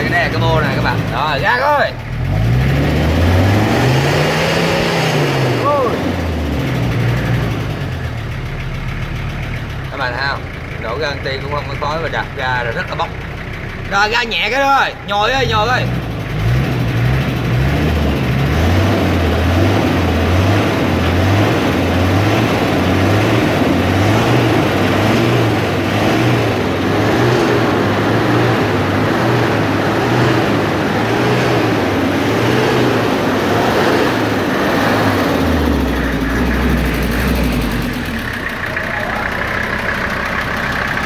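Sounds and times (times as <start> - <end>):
diesel engine revving: 0.0 - 41.0.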